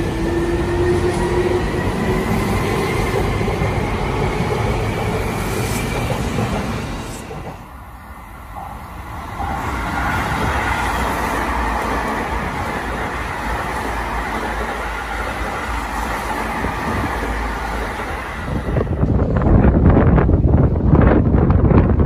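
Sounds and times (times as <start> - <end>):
electric train rumbling past: 0.0 - 22.0
wind gusts on microphone: 8.8 - 22.0.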